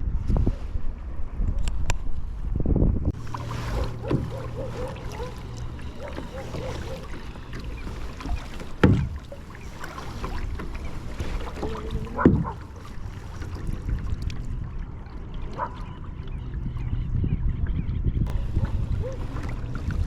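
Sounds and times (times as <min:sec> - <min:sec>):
water sloshing around kayak: 0:03.0 - 0:20.0
paddle splashes: 0:03.1 - 0:16.8, 0:18.3 - 0:20.0.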